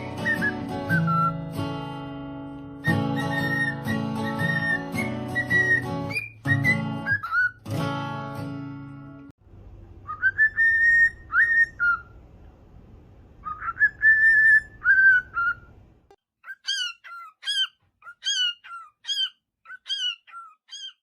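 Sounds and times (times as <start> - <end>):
parrot whistling: 0.0 - 1.5, 2.8 - 7.7, 10.0 - 12.2, 13.4 - 15.8, 16.4 - 21.0
parrot chirps falling in pitch: 16.4 - 21.0.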